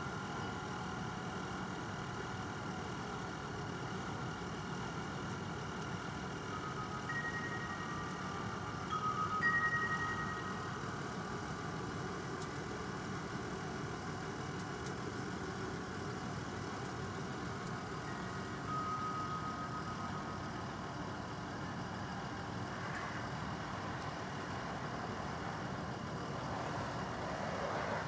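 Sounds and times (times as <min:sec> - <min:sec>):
faint thin whine: 0:00.0 - 0:28.0
low engine rumble: 0:00.0 - 0:28.0.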